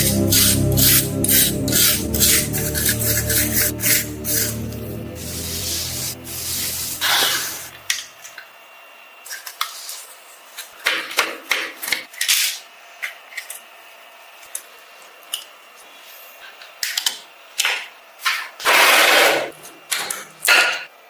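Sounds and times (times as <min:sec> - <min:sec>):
music: 0:00.0 - 0:07.9.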